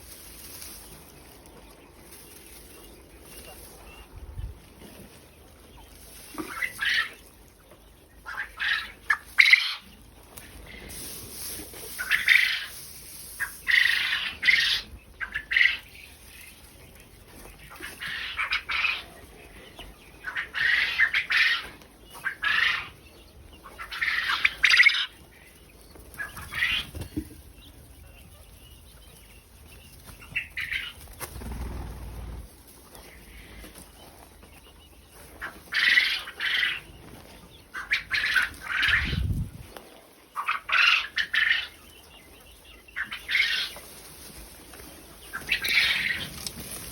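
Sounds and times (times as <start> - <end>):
quail squawking: 5.7 - 16.5, 17.3 - 28.6, 30.0 - 32.2, 35.2 - 39.6, 40.3 - 46.9
wings fluttering: 30.6 - 32.6.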